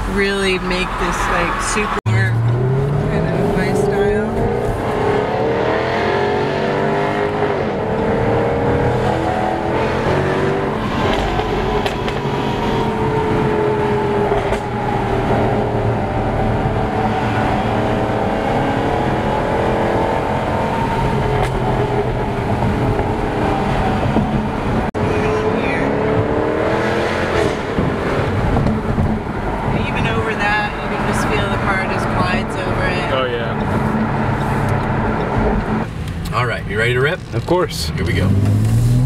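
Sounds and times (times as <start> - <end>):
car engine running: 27.2 - 38.9.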